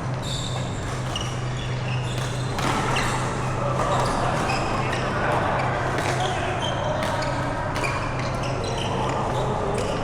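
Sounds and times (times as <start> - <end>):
shoes squeaking on court floor: 0.0 - 5.0.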